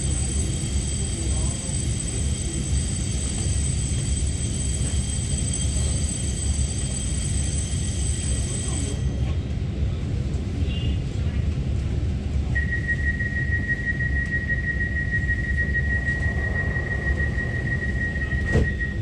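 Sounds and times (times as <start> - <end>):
train rumbling in motion: 0.0 - 19.0
steady high-pitched tones: 12.9 - 19.0.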